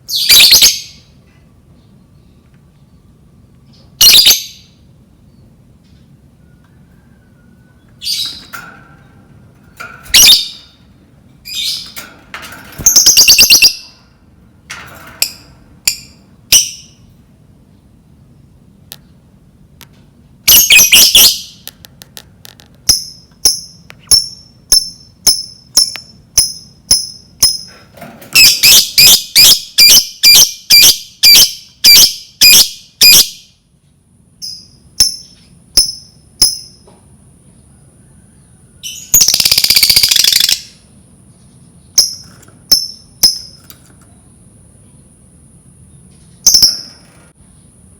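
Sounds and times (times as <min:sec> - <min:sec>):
bird shrill chirps and squawks: 0:00.1 - 0:01.1, 0:04.0 - 0:04.8, 0:10.1 - 0:10.8, 0:12.8 - 0:14.0, 0:20.5 - 0:21.6, 0:28.4 - 0:33.4, 0:38.8 - 0:40.8.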